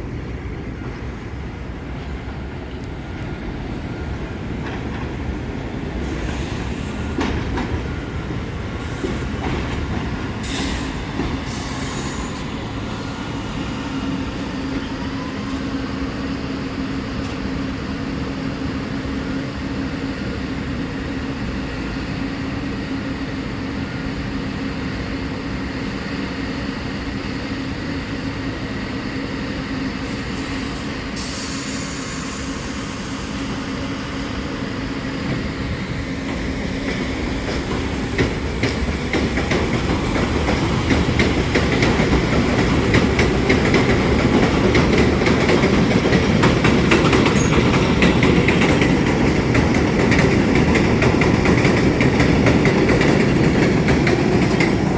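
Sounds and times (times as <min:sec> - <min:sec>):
subway train rumbling: 0:00.0 - 0:54.9
brief high hiss: 0:30.1 - 0:33.6.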